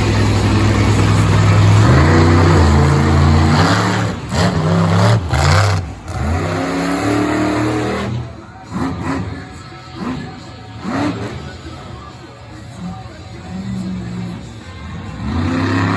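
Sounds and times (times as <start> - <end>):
monster truck engine revving: 0.0 - 15.9.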